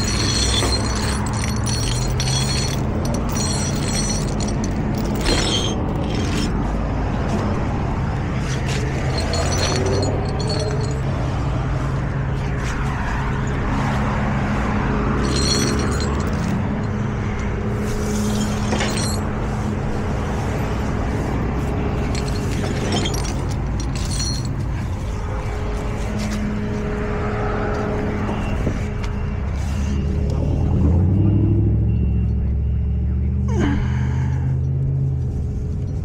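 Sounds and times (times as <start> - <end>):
knocks and rattles: 0.0 - 6.7, 8.7 - 11.2, 15.2 - 17.5, 18.3 - 19.5, 21.9 - 25.2
road noise: 0.0 - 36.0
truck engine drone: 0.0 - 36.0.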